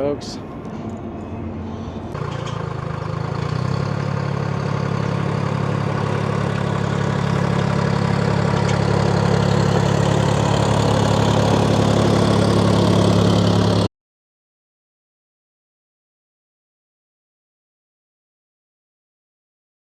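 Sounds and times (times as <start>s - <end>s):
engine idling: 0.0s - 13.9s.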